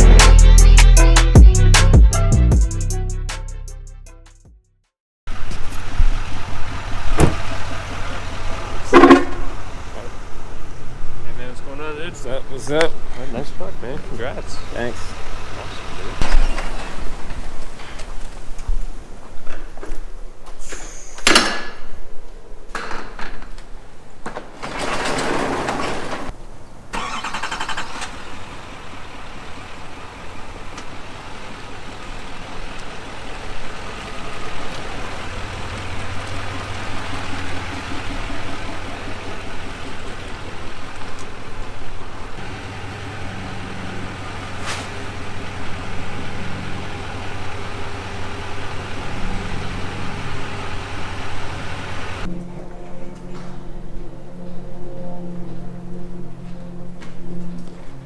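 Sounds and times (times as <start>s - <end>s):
pickup truck engine running: 0.0s - 2.9s, 5.3s - 17.5s, 27.0s - 52.3s.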